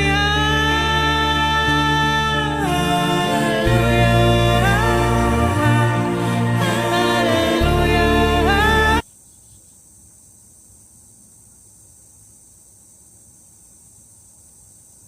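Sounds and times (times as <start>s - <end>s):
sung ballad with accompaniment: 0.0s - 9.0s.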